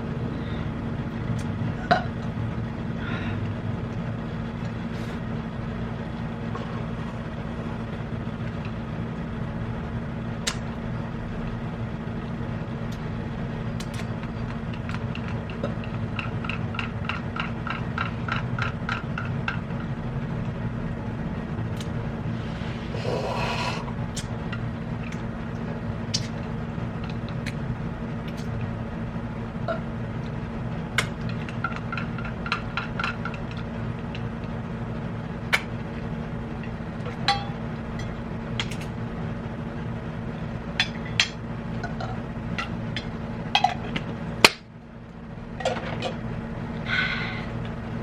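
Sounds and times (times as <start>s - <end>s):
steady low hum: 0.0s - 48.0s
utensils clinking against dishes: 37.1s - 38.9s.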